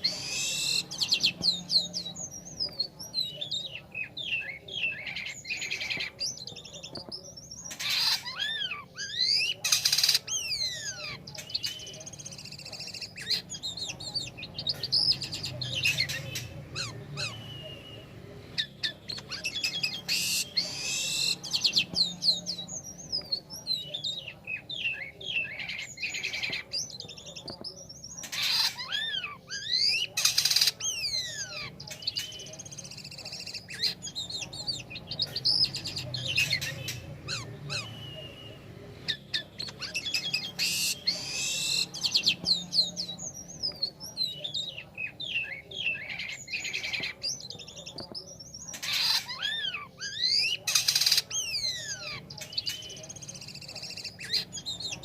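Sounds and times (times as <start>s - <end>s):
starling singing whistled trills: 0.0s - 55.0s
harsh rasping bird notes: 18.6s - 23.8s.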